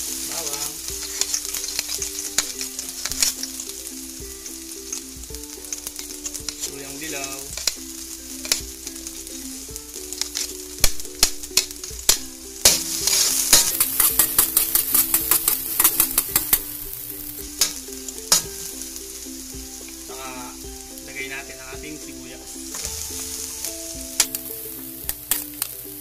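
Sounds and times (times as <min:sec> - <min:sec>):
background music: 0:00.0 - 0:26.0
garlic sizzling in hot oil: 0:00.0 - 0:26.0
metal spoon scraping a wok: 0:00.7 - 0:03.8, 0:12.6 - 0:18.6.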